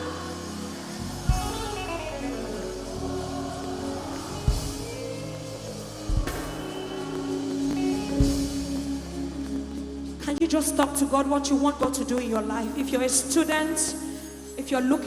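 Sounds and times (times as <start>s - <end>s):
sustained bass and chords: 0.0s - 14.6s
heavy drum hits: 1.2s - 1.9s, 4.0s - 5.1s, 6.0s - 7.1s.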